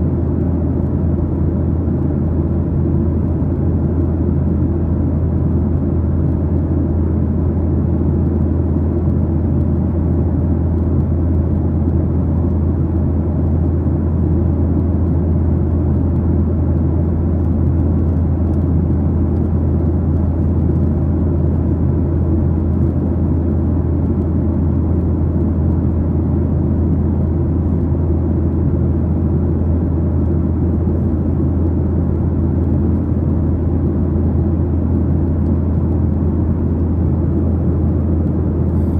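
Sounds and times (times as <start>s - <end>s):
airplane cabin engine drone: 0.0s - 38.9s.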